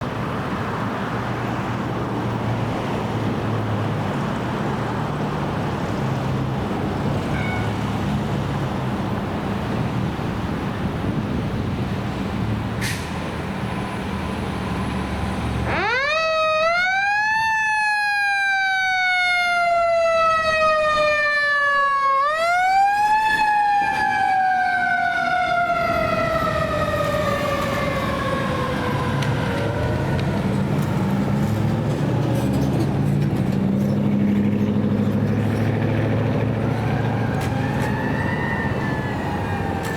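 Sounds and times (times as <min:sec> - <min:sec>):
traffic noise: 0:00.0 - 0:39.9
fire engine siren wailing: 0:05.5 - 0:11.4, 0:13.4 - 0:32.6, 0:35.7 - 0:39.9
engine rumble: 0:22.2 - 0:39.9.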